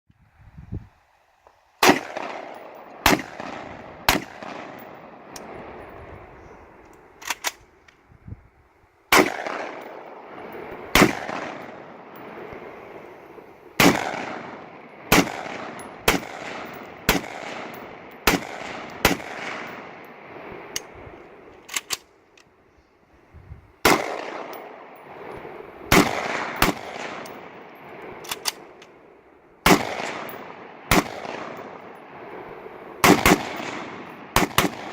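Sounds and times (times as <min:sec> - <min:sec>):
gunshots with long echo: 0:01.8 - 0:06.8, 0:09.1 - 0:21.5, 0:23.8 - 0:29.0, 0:29.6 - 0:34.9.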